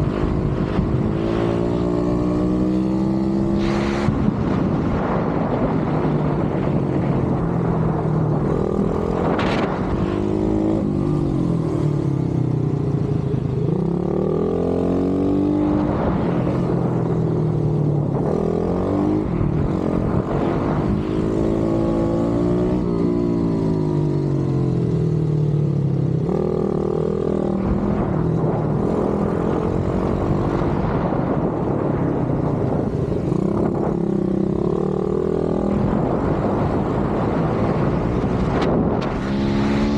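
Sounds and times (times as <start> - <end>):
pit bike engine revving: 33.4 - 39.9.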